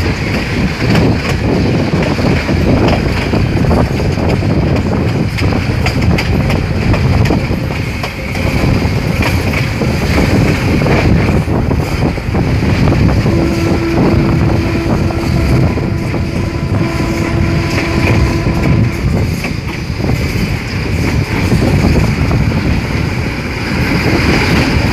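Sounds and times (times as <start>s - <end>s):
train coach running on rails: 0.0s - 24.9s
wind buffeting microphone: 0.0s - 24.9s
steady tone: 12.7s - 19.4s.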